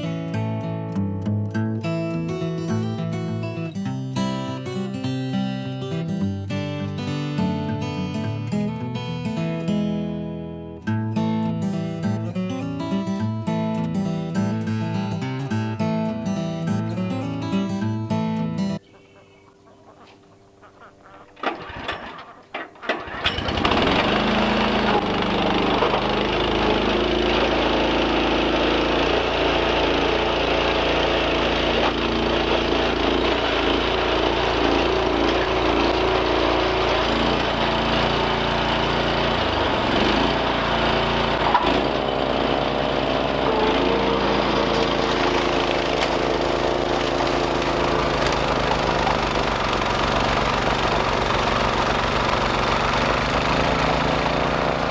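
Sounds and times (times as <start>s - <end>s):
small gas engine starting: 21.0s - 54.9s.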